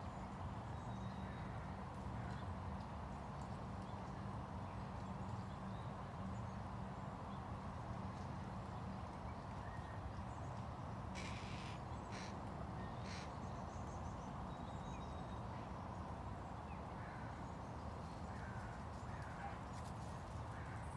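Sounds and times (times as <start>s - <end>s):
low outdoor background noise: 0.0s - 20.9s
short bird calls: 11.2s - 12.4s, 13.0s - 13.4s.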